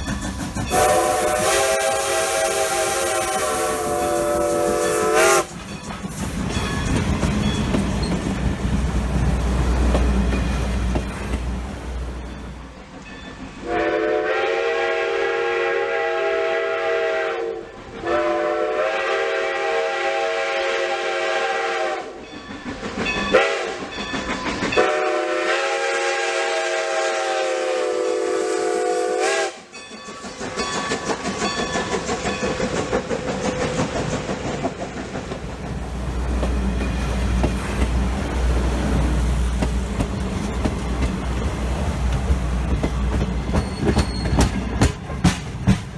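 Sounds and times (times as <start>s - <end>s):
train rumbling past: 0.0s - 45.9s
steam locomotive whistle: 0.7s - 5.6s, 13.6s - 22.2s, 23.3s - 23.9s, 24.8s - 29.8s.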